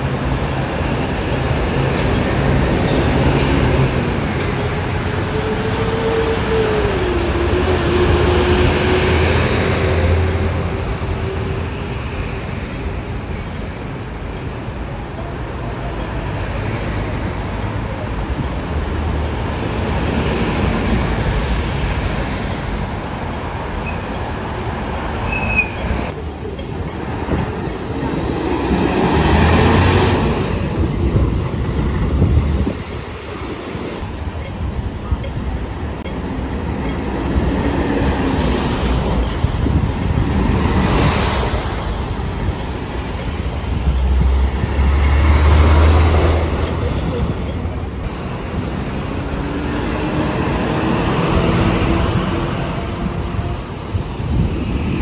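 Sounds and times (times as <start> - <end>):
road traffic rumble: 0.0 - 55.0
short high squeal: 25.2 - 26.1
heavy vehicle rumbling past: 27.1 - 32.8.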